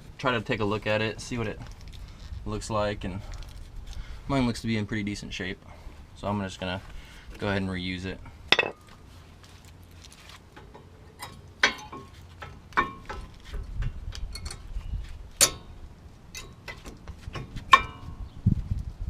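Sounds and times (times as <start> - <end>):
metal brake parts clinking: 8.5 - 8.9, 14.3 - 14.7.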